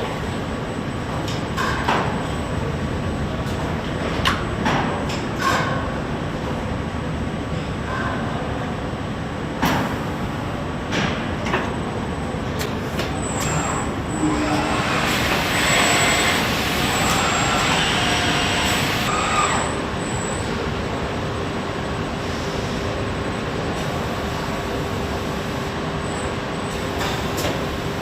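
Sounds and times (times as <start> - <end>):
assembly-line machinery running: 13.3 - 19.8.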